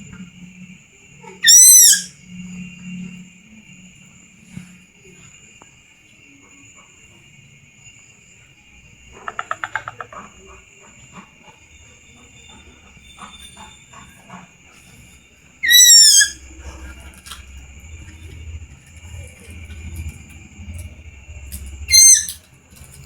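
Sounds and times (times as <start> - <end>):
downward-sliding whistled call: 1.2 - 3.2, 12.0 - 18.4, 21.7 - 22.4
chicks calling: 9.2 - 17.4, 21.8 - 22.4
steady high drone: 11.7 - 23.0.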